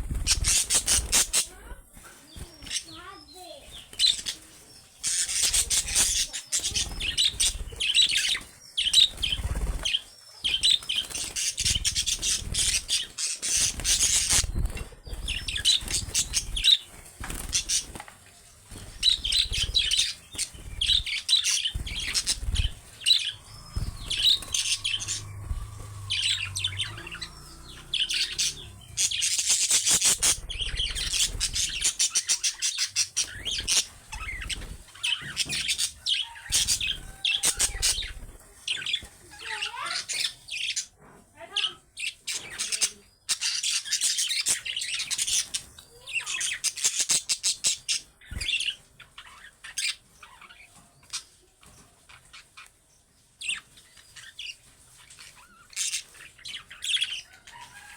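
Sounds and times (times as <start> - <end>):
budgerigars chattering and squawking: 0.0 - 52.8, 53.4 - 57.9.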